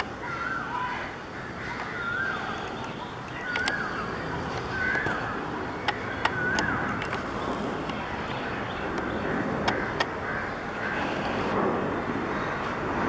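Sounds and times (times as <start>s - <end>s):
bird calling: 0.0s - 11.6s
sharp clicks: 1.8s - 10.2s
background rumble: 2.7s - 13.0s.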